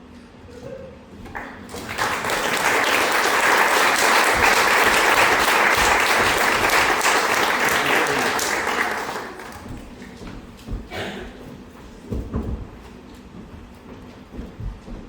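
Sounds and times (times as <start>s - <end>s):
audience applauding: 1.3s - 10.1s.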